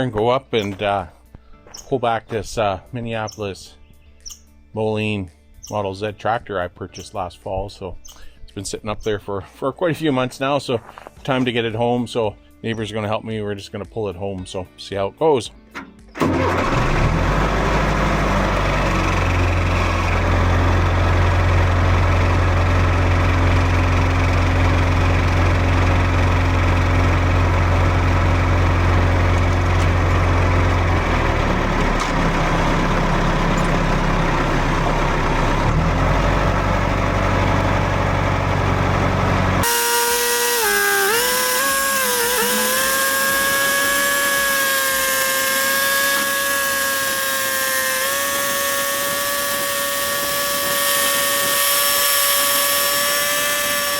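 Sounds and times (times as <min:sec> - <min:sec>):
tractor engine humming: 0:15.8 - 0:53.9
high-pitched mechanical whine: 0:17.8 - 0:53.9.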